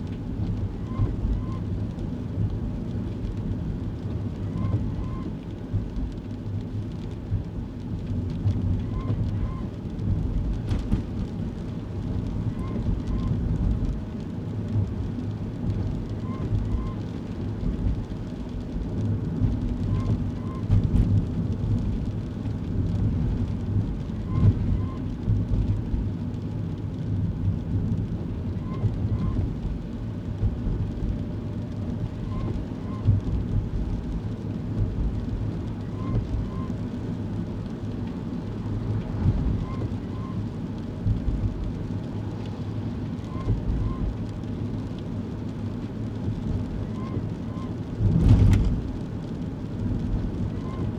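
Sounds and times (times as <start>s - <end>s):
road and engine rumble in car: 0.0s - 50.9s.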